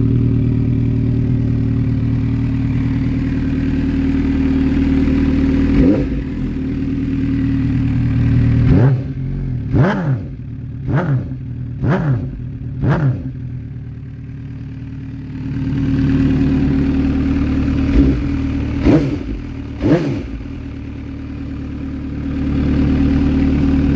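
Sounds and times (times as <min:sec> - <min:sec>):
motorcycle engine idling: 0:00.0 - 0:23.9
engine throttle revs: 0:04.6 - 0:06.8, 0:07.9 - 0:13.5, 0:17.1 - 0:20.8.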